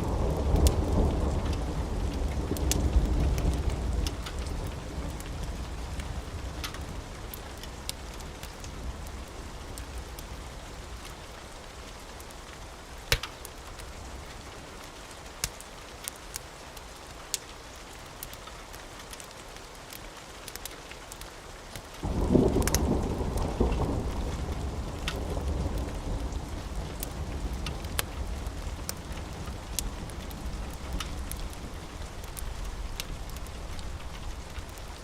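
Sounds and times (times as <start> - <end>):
thunder rumble: 0.0 - 11.1, 22.0 - 35.0
steady rain: 0.0 - 35.0
sharp drips and clicks: 0.5 - 35.0.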